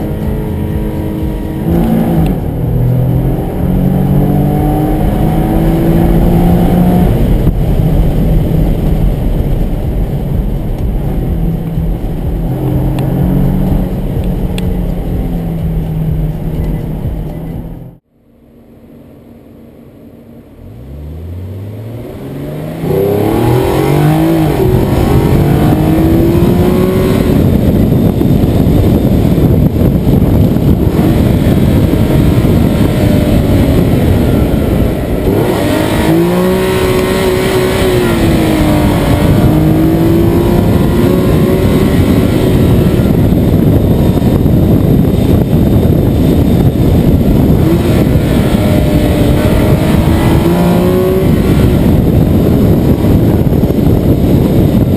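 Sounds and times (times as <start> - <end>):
car engine accelerating: 0.0 - 54.9
road and wind rumble: 0.0 - 54.9.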